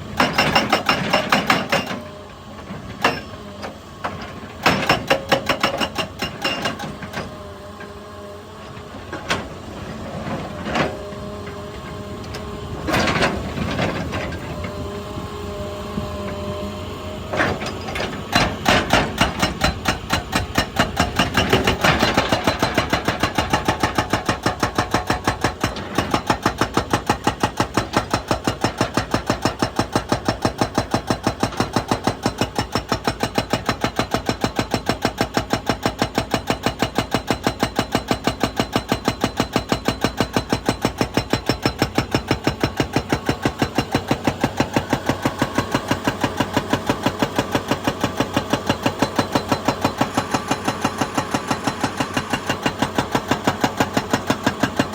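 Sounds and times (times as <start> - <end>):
hydraulic breaker hammering rock: 0.0 - 2.1, 2.8 - 7.4, 17.3 - 54.9
diesel engine running: 7.4 - 28.4, 41.5 - 54.9.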